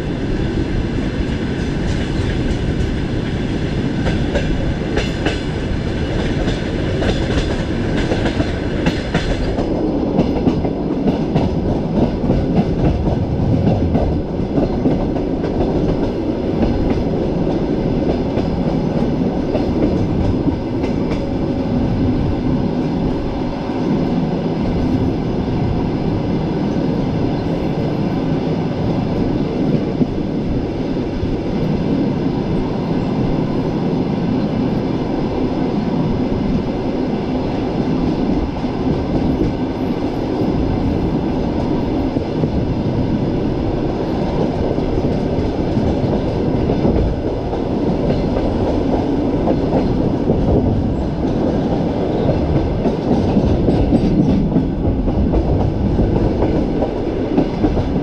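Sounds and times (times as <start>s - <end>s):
train wheels rumbling on rails: 0.0s - 58.0s
wheels clickety-clack: 4.0s - 21.4s, 44.3s - 58.0s.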